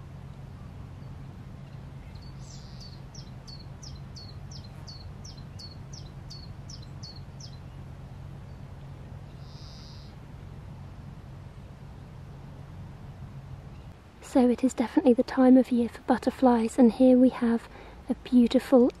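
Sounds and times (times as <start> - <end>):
buzzy bird note: 0.0 - 13.9
songbird singing: 0.0 - 19.0
steady low hum: 0.0 - 19.0.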